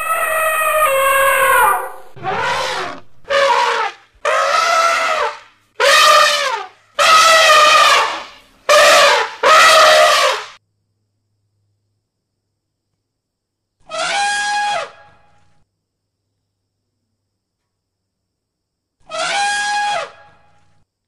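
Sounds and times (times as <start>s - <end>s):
elephant trumpeting: 0.0s - 10.6s.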